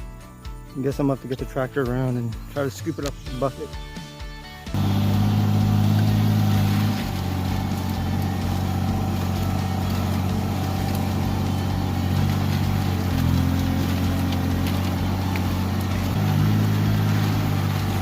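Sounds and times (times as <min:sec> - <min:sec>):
tractor engine running: 0:04.7 - 0:18.0.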